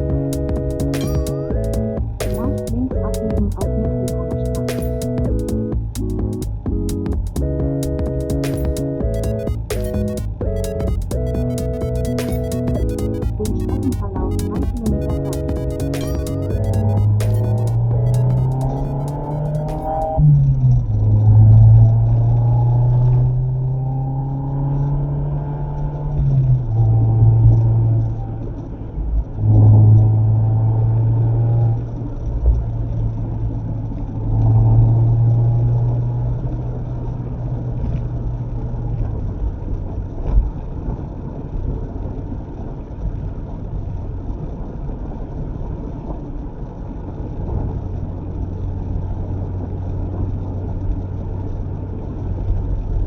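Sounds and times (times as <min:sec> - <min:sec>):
car engine accelerating: 0:00.0 - 0:28.2.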